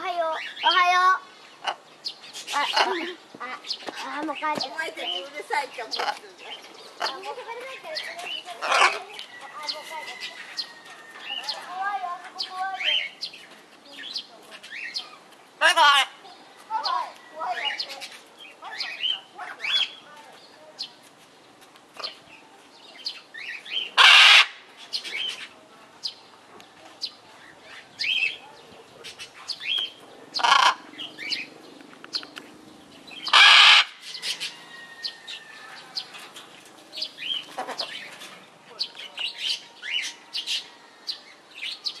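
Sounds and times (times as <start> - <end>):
small birds chirping: 0.0 - 42.0
loud harsh parrot squawks: 24.0 - 24.6, 30.4 - 30.9, 33.2 - 35.2.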